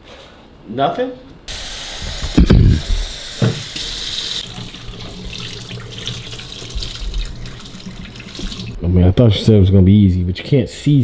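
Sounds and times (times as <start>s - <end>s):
tap running into sink: 1.5s - 8.8s.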